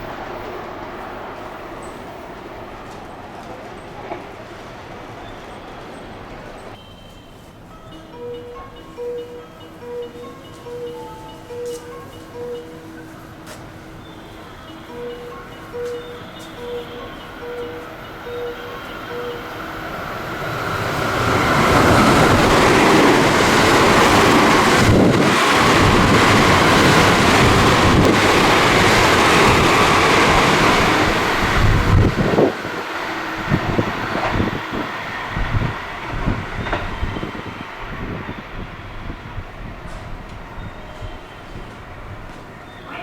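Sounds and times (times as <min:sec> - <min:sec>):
train rushing past: 0:00.0 - 0:43.0.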